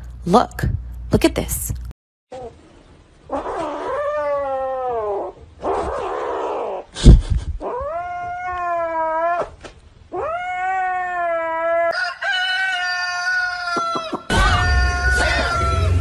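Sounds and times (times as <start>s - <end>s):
kitten yowling: 7.7s - 11.9s.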